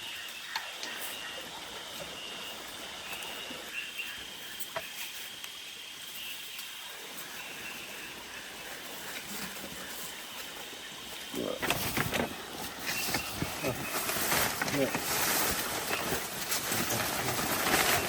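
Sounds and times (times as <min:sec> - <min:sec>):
rain hissing: 0:05.2 - 0:18.0.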